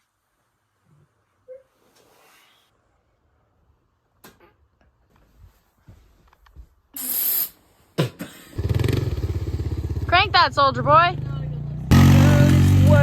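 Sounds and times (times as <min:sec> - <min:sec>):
short sharp hiss: 0:07.0 - 0:07.9.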